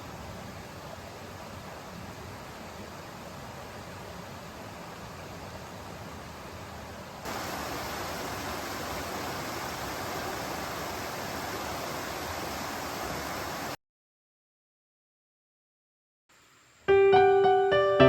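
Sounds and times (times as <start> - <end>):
stream running water: 0.0 - 13.8.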